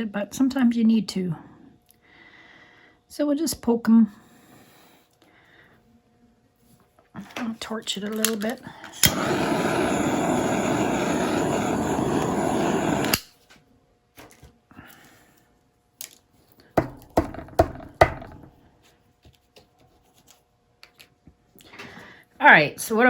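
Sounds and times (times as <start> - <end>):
torch ignition click: 8.2 - 13.3
butane torch hissing: 8.9 - 13.3
sharp knocks: 16.8 - 18.5.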